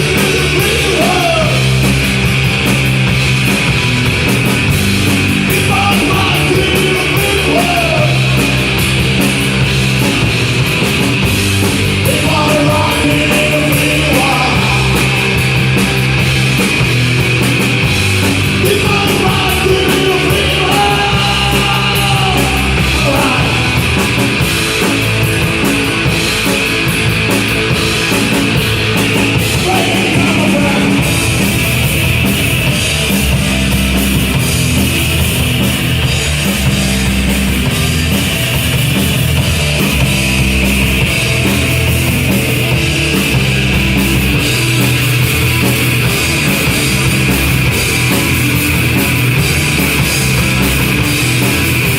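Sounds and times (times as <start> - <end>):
person singing: 0.0 - 1.7, 5.4 - 8.6, 12.0 - 15.6, 18.6 - 24.2
punk rock band playing live: 0.0 - 51.9.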